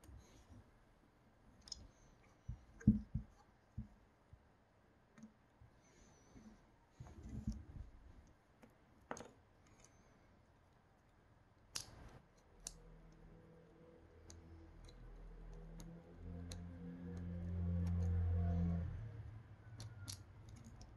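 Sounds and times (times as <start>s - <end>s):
small parts clicking and tapping: 1.6s - 3.4s, 7.3s - 10.0s, 10.6s - 20.9s.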